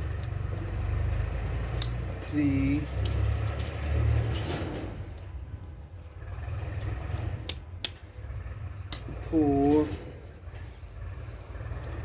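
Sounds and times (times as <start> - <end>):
low rumble of handling: 0.0 - 12.0
sharp metallic clicks: 1.6 - 3.8.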